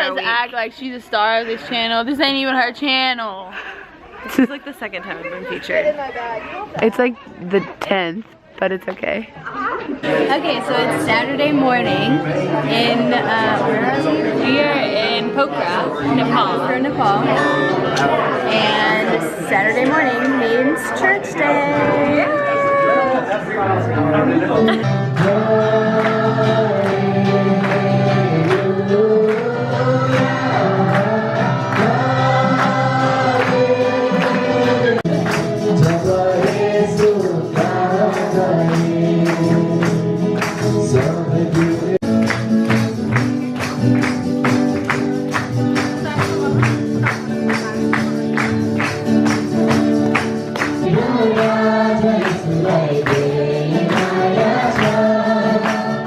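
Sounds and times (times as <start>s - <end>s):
group singing a worship song: 10.0s - 43.2s, 50.1s - 56.0s.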